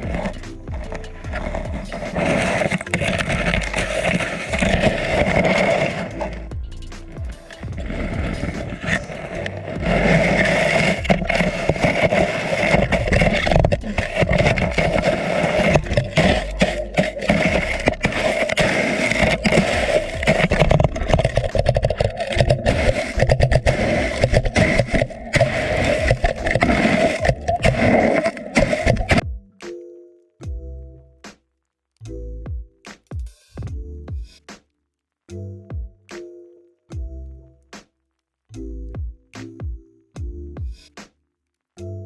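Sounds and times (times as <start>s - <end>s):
underwater water rushing and scraping: 0.0s - 29.2s
crackling clicks: 0.0s - 29.8s.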